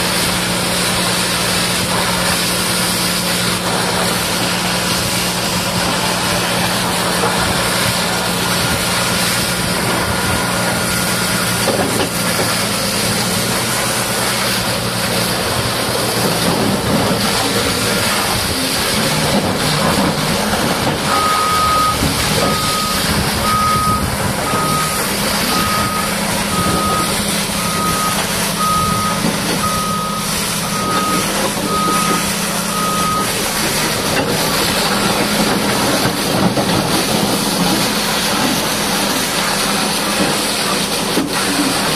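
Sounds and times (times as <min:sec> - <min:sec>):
bulldozer diesel engine running: 0:00.0 - 0:41.9
reversing alarm beeping: 0:05.6 - 0:13.0, 0:17.6 - 0:39.3.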